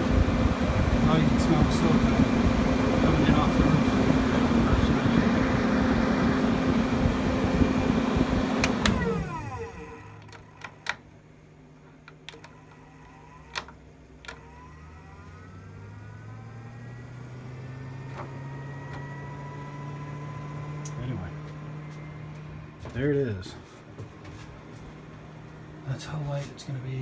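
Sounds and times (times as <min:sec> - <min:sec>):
fan motor speeding up: 0:00.0 - 0:11.1, 0:12.1 - 0:27.0
roof vent fan running: 0:00.0 - 0:27.0
switch clicks: 0:08.6 - 0:09.1.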